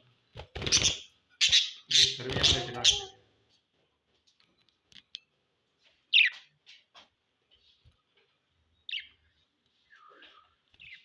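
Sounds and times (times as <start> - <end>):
budgerigars chirping: 0.6 - 3.1.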